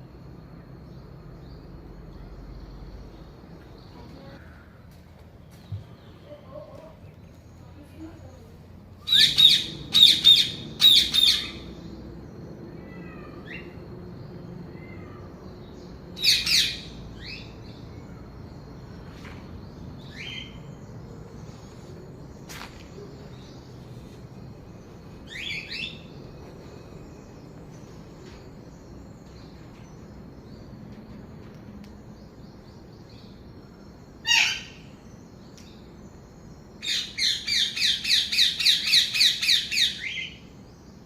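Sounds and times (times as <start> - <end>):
birds calling harshly: 5.6 - 30.5, 34.1 - 36.0, 36.7 - 40.7.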